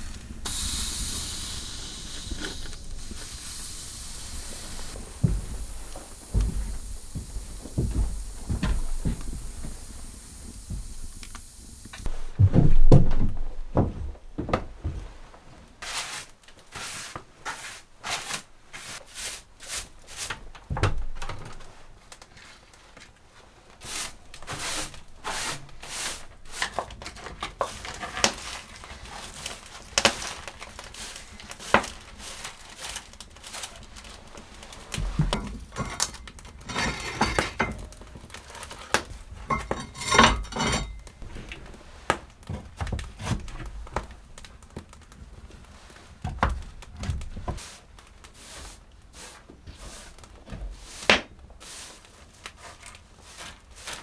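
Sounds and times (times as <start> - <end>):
objects knocking and clinking: 39.4 - 41.1.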